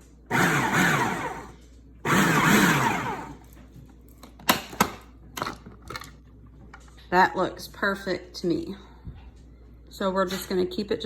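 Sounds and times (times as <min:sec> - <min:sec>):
food processor motor chopping: 0:00.3 - 0:03.5.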